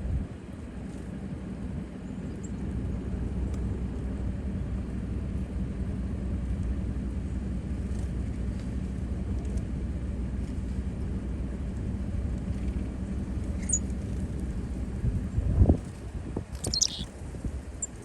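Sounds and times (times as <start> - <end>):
faint hum: 0.0 - 18.0
bird chirp: 13.6 - 13.8, 16.6 - 17.1.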